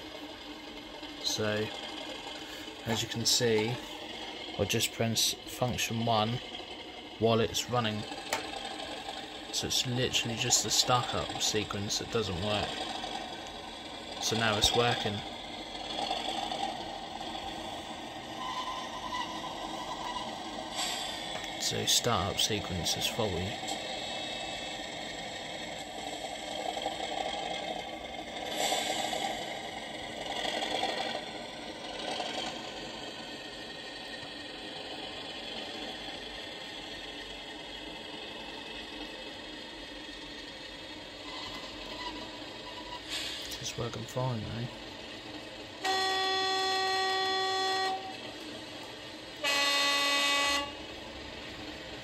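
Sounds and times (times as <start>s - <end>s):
diesel engine sound from small speaker: 0.0s - 52.0s
two-tone diesel horn: 45.8s - 48.2s, 49.4s - 51.0s.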